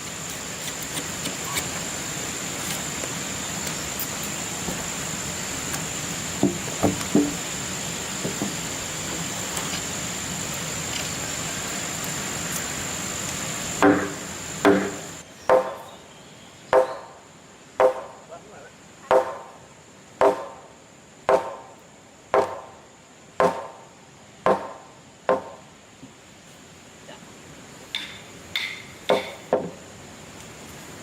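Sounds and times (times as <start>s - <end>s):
steady hiss: 0.0s - 31.0s
tool striking wood: 6.4s - 7.4s, 13.8s - 15.8s, 16.7s - 17.1s, 17.8s - 18.2s, 19.1s - 19.5s, 20.2s - 20.6s, 21.3s - 21.7s, 22.4s - 22.7s, 23.4s - 23.8s, 24.5s - 25.6s, 27.9s - 29.8s.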